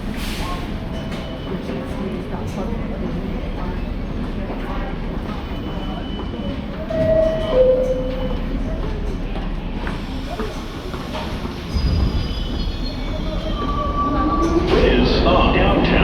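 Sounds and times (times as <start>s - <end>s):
subway train rumbling on rails: 0.0s - 16.0s
train wheels squealing: 5.3s - 9.0s, 9.8s - 15.2s.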